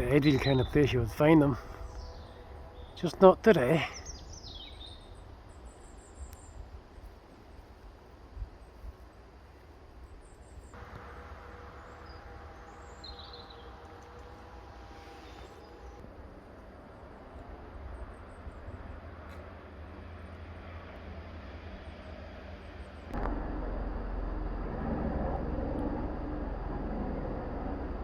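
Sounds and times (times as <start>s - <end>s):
bird chirp: 0.0s - 6.7s, 10.2s - 16.0s
distant mechanical hum: 10.7s - 28.0s
low rumble: 10.8s - 28.0s.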